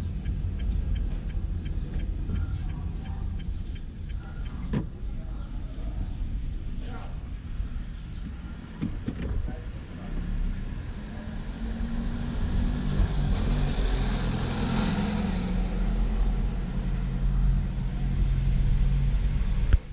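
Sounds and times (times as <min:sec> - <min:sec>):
car engine running: 0:00.0 - 0:10.6
tyre and road noise: 0:00.0 - 0:19.9.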